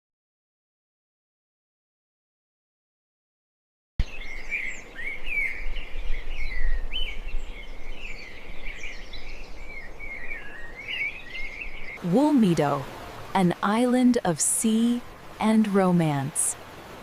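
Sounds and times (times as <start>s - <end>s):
birds chirping: 4.0s - 17.0s.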